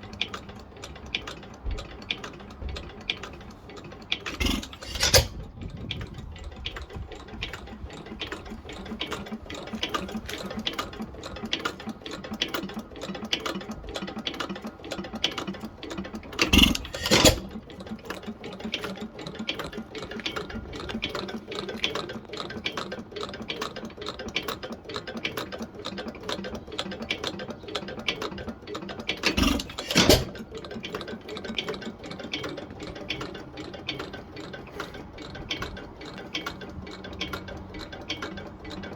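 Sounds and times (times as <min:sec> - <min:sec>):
stationary engine clattering: 0:00.0 - 0:38.9.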